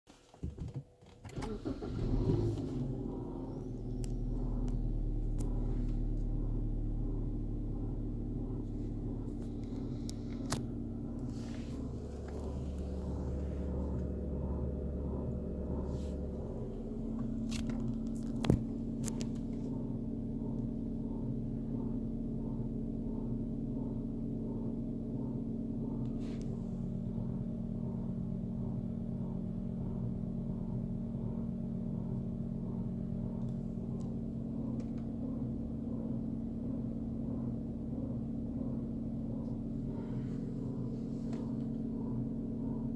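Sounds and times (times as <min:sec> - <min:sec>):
car engine idling: 0:01.3 - 0:42.9
rhythmic pulsing noise: 0:02.8 - 0:26.0.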